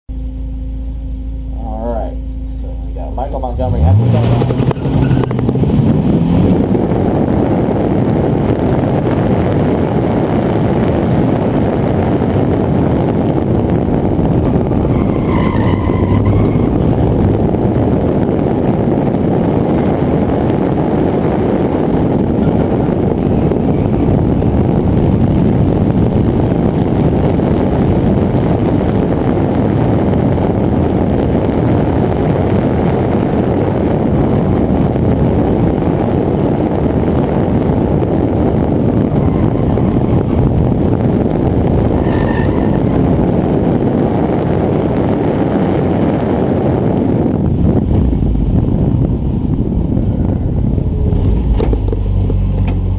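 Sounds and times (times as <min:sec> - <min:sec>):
car engine under load: 0:00.1 - 0:52.9
tire squeal: 0:03.8 - 0:05.4, 0:14.6 - 0:17.4, 0:38.8 - 0:40.7, 0:41.8 - 0:43.4.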